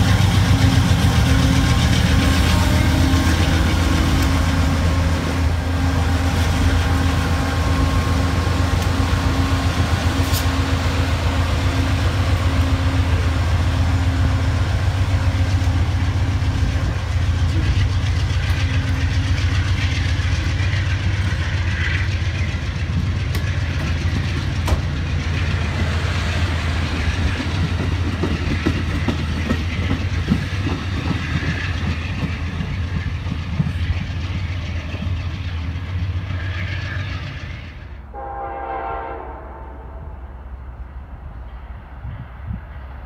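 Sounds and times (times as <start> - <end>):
distant train horn: 0.0 - 16.5, 36.3 - 40.5
train wheels rumbling on rails: 0.0 - 38.4, 40.0 - 43.0
wheels clicking over rail joints: 15.4 - 36.2.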